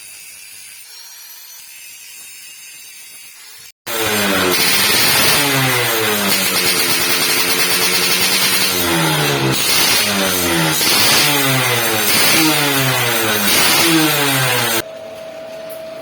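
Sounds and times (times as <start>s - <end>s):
motorcycle engine revving: 3.9s - 14.8s.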